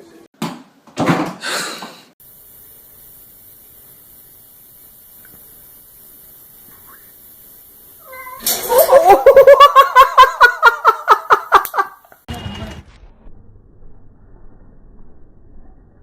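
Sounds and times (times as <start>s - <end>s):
cat yowling: 8.0s - 9.2s.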